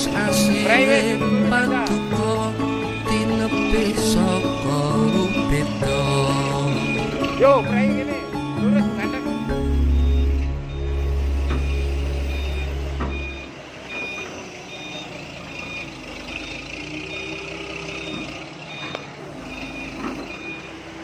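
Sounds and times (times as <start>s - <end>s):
music with heavy bass: 0.0s - 13.5s
reversing alarm beeping: 0.0s - 21.0s.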